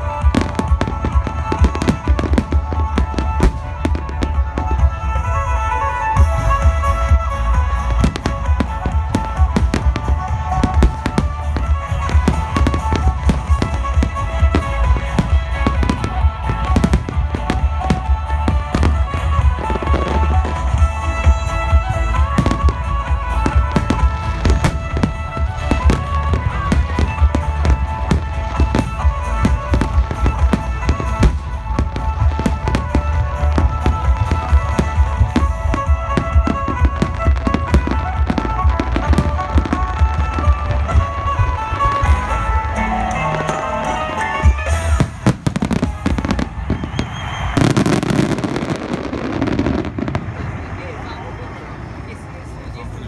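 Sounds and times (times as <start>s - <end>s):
music playing: 0.0s - 51.6s
fireworks bangs: 0.0s - 52.2s.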